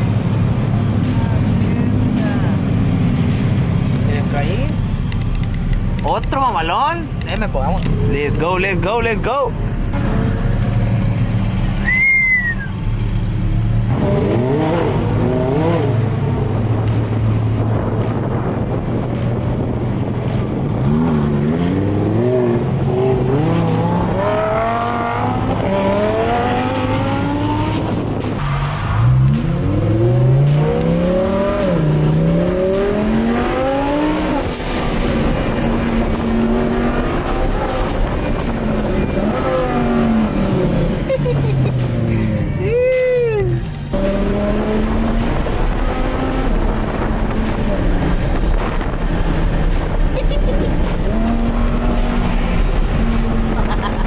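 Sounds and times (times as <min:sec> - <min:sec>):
car engine accelerating hard: 0:00.0 - 0:42.6, 0:43.4 - 0:54.0
high whistle: 0:11.8 - 0:12.8.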